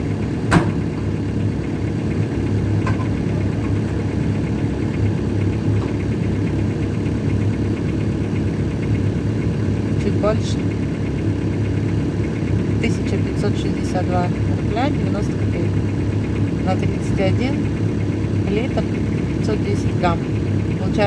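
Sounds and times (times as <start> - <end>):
diesel car engine idling: 0.0 - 21.0.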